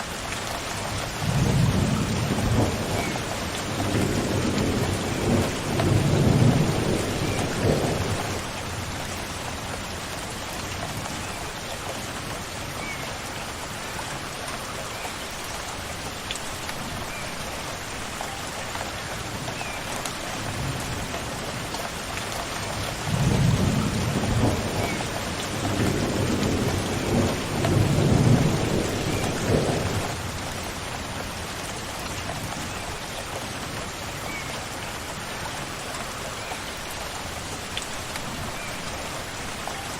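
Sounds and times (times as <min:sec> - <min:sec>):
rain falling: 0:00.0 - 0:39.9
thunder rumbling: 0:01.2 - 0:08.8, 0:23.0 - 0:30.6.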